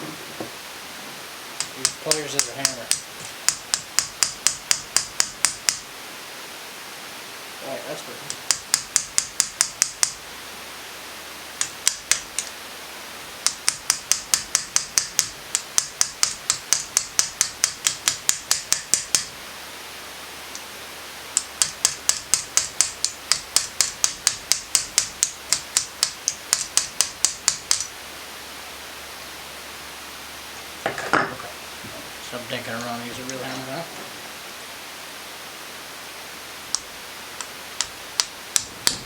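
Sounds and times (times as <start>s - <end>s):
pliers tapping metal pin: 13.5s - 19.3s, 21.4s - 27.9s.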